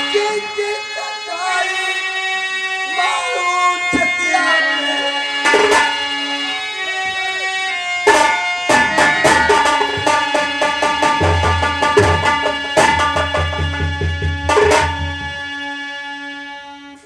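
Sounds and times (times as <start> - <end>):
held melody notes: 0.0 - 15.7
hand drums fast rhythm: 8.1 - 15.3.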